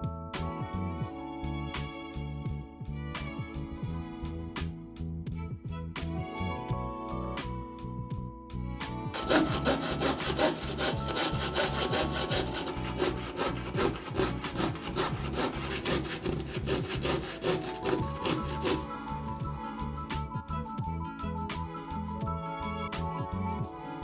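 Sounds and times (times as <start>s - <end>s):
soft background music: 0.0s - 24.0s
hand tool strokes on wood: 9.2s - 19.6s.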